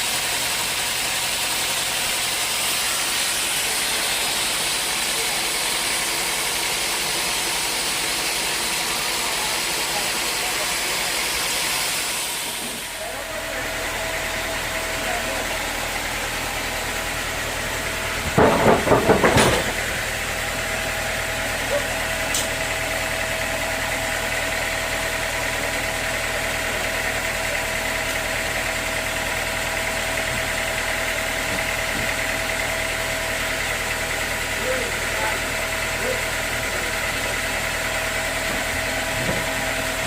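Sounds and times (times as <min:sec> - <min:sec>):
sawmill machinery hum and whine: 0:00.0 - 0:40.0
rapid knocks: 0:18.3 - 0:19.8.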